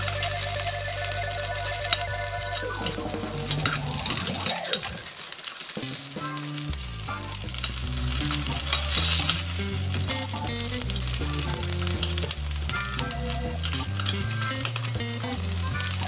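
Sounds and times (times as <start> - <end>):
background music: 0.0 - 16.0
batter sizzling in a pan: 0.0 - 16.0
metal spoons scraping a pan: 13.6 - 15.0.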